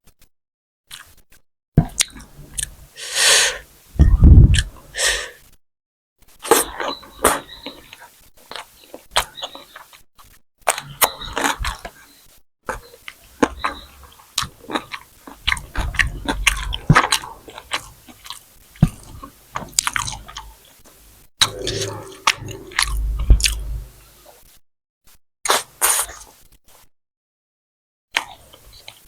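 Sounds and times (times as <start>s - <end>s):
person chewing and smacking: 12.7s - 20.6s.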